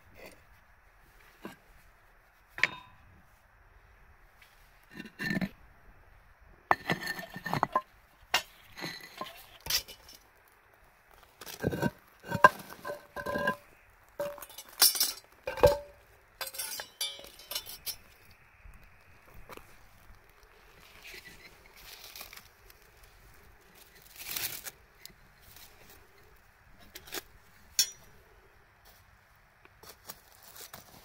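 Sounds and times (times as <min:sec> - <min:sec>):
hard objects clinking: 0:11.6 - 0:18.2.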